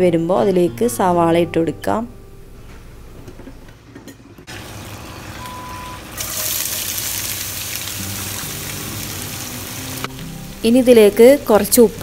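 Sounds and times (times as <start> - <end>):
oil sizzling in a pan: 4.5 - 12.0.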